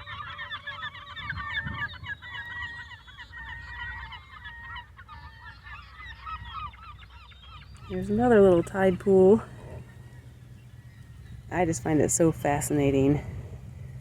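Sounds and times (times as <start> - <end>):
flock of birds chattering: 0.0 - 14.0
low rumble: 7.6 - 14.0.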